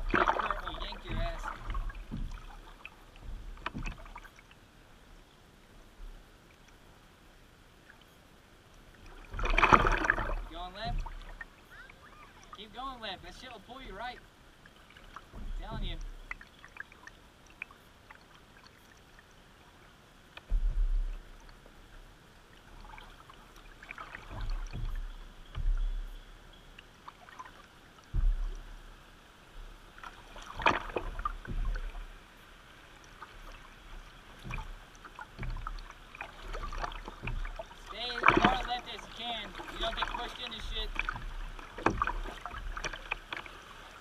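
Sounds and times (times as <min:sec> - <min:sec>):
loud low thumps and knocks: 0:00.0 - 0:02.6, 0:03.2 - 0:04.2, 0:09.4 - 0:11.3, 0:15.3 - 0:16.2, 0:20.5 - 0:21.2, 0:24.4 - 0:26.2, 0:28.1 - 0:28.8, 0:30.6 - 0:32.0
moving river water: 0:00.0 - 0:44.0
paddle strokes and splashes: 0:00.0 - 0:44.0.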